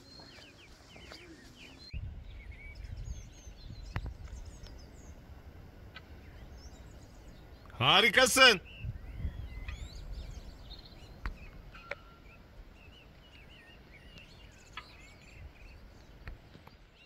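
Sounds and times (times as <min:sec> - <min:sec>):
small birds chirping and singing: 0:00.0 - 0:17.0.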